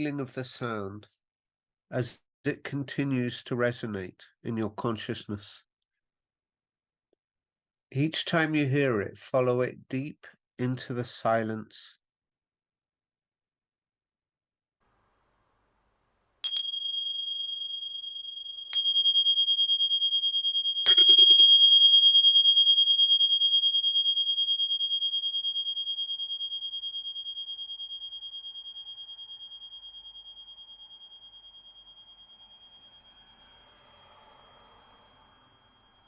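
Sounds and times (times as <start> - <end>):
small hand cymbals ringing: 16.4 - 36.0.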